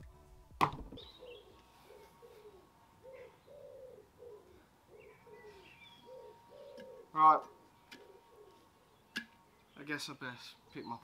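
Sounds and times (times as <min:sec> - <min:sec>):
bird cooing: 0:01.0 - 0:09.0.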